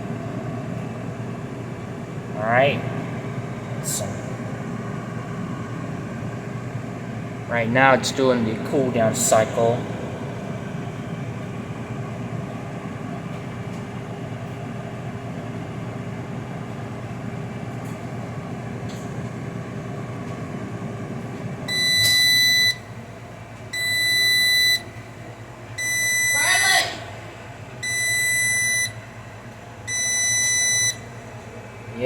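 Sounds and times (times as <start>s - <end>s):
air fryer fan running: 0.0s - 32.0s
long electronic beeps: 21.7s - 22.8s, 23.8s - 24.9s, 25.8s - 26.5s, 27.8s - 29.0s, 29.9s - 31.0s.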